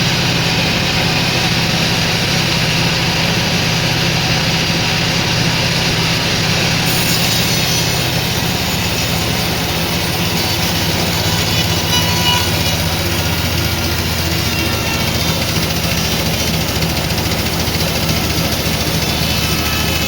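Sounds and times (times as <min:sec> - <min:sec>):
motor hum: 0:00.0 - 0:20.0
saw running: 0:00.0 - 0:20.0
high hiss: 0:06.6 - 0:20.0.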